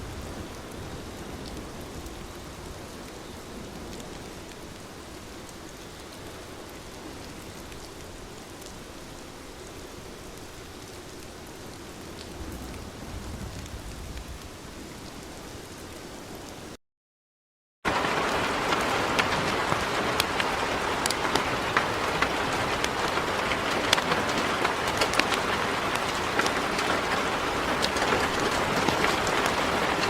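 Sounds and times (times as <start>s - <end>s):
heavy rain falling: 0.0s - 16.8s, 17.9s - 30.0s
raindrop ticks: 3.8s - 8.8s, 17.9s - 30.0s.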